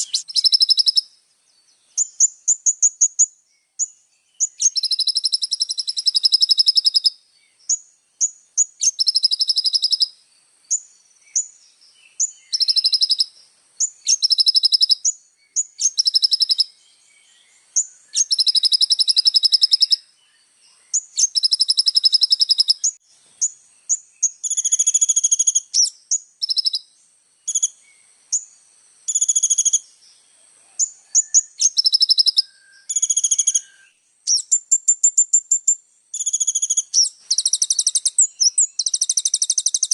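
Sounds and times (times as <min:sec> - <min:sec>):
bird single chirps: 0:00.0 - 0:30.2, 0:30.8 - 0:39.9
sunbird singing rapid trills: 0:00.0 - 0:39.9.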